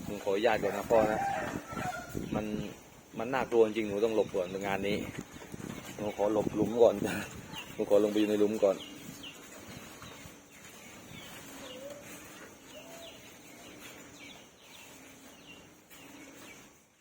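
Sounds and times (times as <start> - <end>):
birds chirping: 0.0 - 17.0
soft low bird calls: 0.4 - 17.0.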